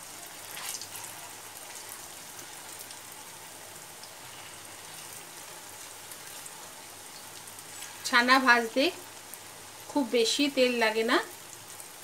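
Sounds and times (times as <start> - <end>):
food sizzling in hot oil: 0.0 - 12.0
oil crackles: 0.2 - 3.1.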